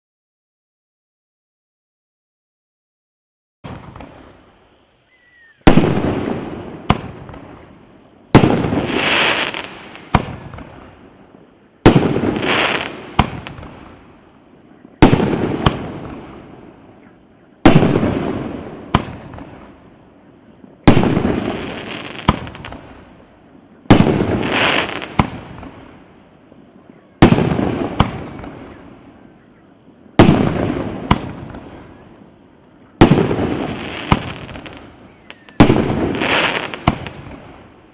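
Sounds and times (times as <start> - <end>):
firework crackle: 3.6 - 37.9
firework shots banging: 5.7 - 7.7, 8.3 - 10.9, 11.8 - 14.0, 15.0 - 16.5, 17.6 - 19.7, 20.8 - 23.0, 23.9 - 25.8, 27.2 - 28.7, 30.2 - 32.0, 33.0 - 37.6.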